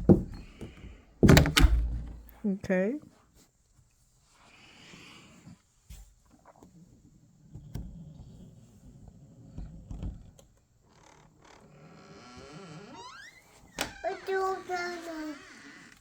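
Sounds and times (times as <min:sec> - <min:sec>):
knocks and thumps on door: 0:00.0 - 0:02.3
door squeaking: 0:00.2 - 0:02.3, 0:10.9 - 0:16.0
door latch click: 0:01.2 - 0:02.2.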